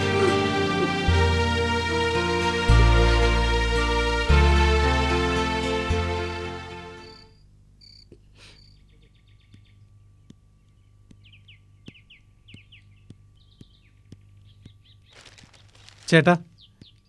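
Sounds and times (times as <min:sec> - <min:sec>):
background music: 0:00.0 - 0:07.3
small birds chirping and trilling: 0:07.0 - 0:17.0
soft regular ticks: 0:08.0 - 0:17.0.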